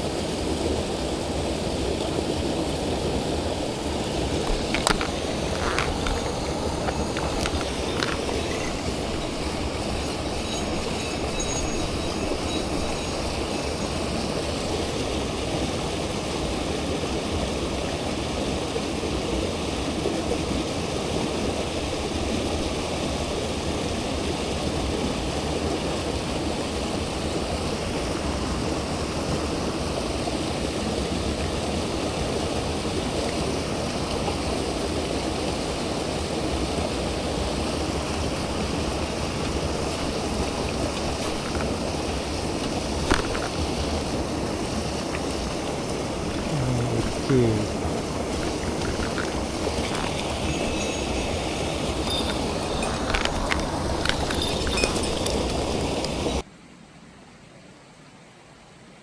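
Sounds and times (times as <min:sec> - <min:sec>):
stream rushing over rocks: 0:00.0 - 0:56.5.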